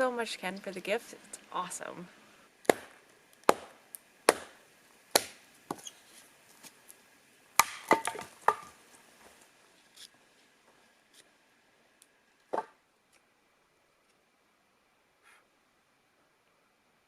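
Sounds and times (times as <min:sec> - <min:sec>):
firewood being chopped: 0:02.6 - 0:05.9, 0:07.6 - 0:08.8, 0:12.5 - 0:12.8.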